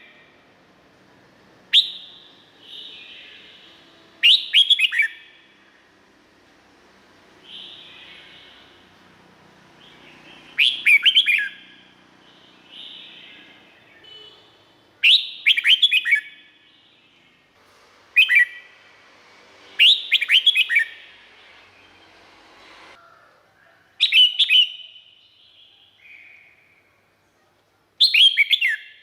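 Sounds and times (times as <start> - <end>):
bulbul singing: 1.7 - 5.5, 7.4 - 17.4, 18.2 - 18.8, 19.8 - 22.1.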